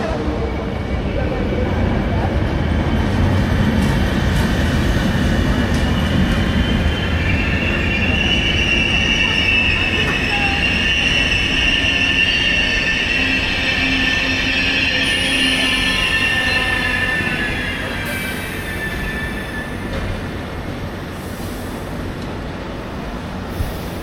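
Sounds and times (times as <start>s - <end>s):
train wheels squealing: 3.9s - 21.8s.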